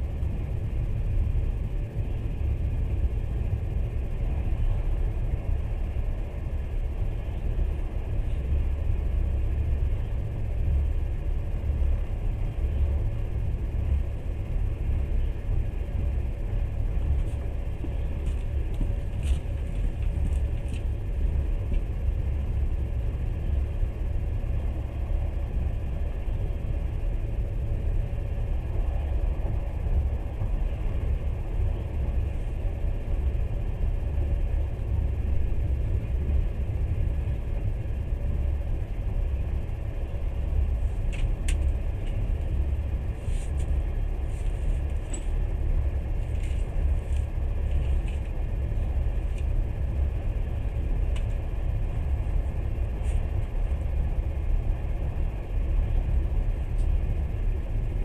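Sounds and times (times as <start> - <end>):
faint steady hum: 0.0 - 58.0
train rumble inside carriage: 0.0 - 58.0.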